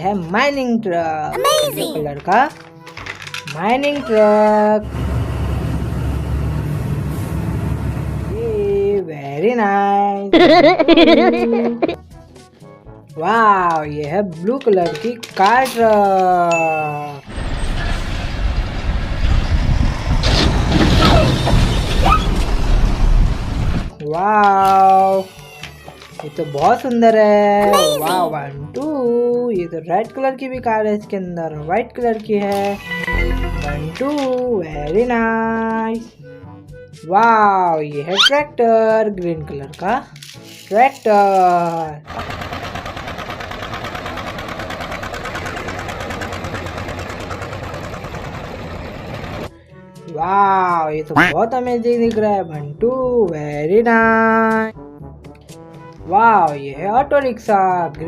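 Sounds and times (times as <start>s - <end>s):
vehicle engine rumble: 17.3s - 23.9s, 42.1s - 49.5s.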